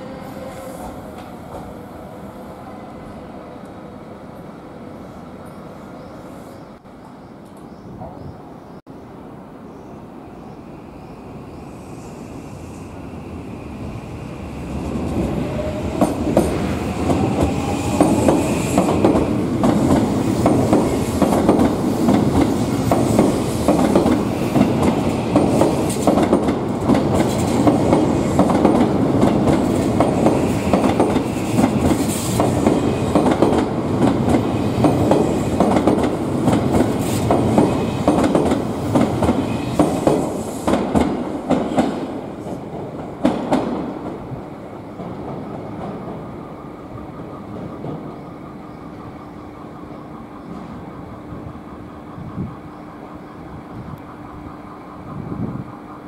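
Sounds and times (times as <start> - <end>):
train wheels clattering: 15.5 - 44.2.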